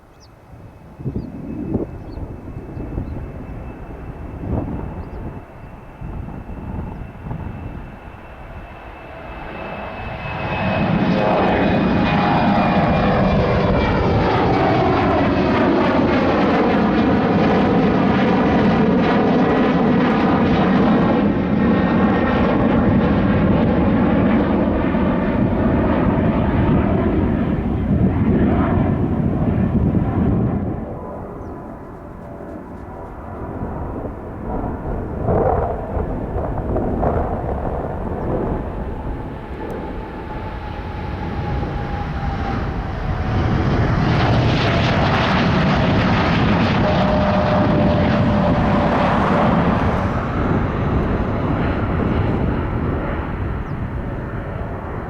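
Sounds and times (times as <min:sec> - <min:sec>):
falling engine whine: 0:00.0 - 0:55.0
jet engines at take-off power: 0:00.0 - 0:55.0.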